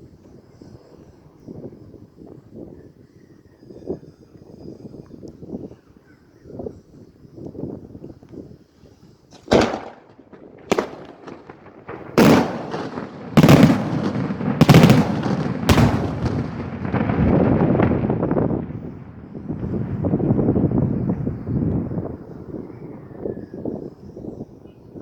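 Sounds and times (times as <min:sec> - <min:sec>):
fireworks bangs echoing: 0:09.3 - 0:22.2.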